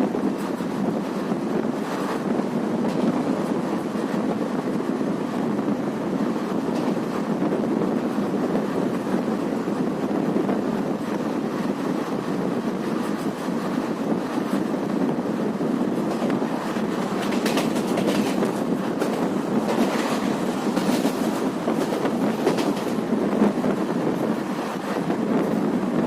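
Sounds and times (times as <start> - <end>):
train rumbling: 0.0 - 26.0
wind rushing past microphone: 0.0 - 26.0.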